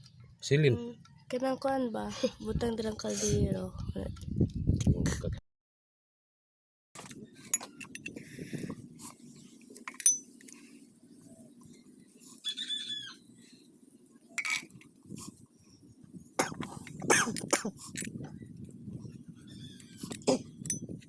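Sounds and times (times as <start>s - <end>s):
metal tools knocking on wheel hub: 9.9s - 10.3s.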